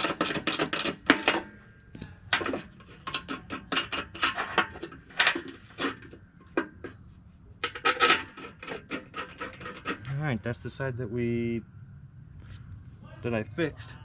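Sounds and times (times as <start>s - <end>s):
metallic clatter: 0.0s - 1.6s, 2.3s - 7.0s, 7.6s - 10.3s
metal parts clicking and scraping: 0.0s - 7.0s, 7.6s - 10.2s.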